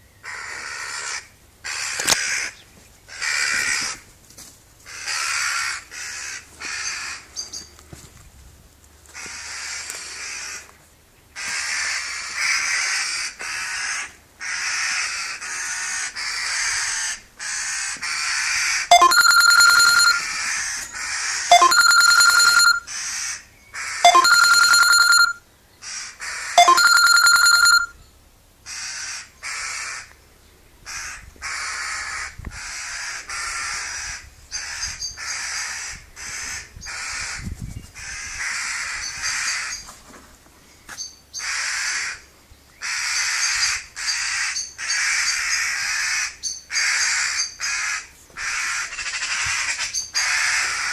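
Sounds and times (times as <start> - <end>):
ring-like steady tones: 18.9 - 20.4, 21.5 - 22.9, 24.0 - 25.4, 26.6 - 27.9
birds giving rasping calls: 42.8 - 50.9.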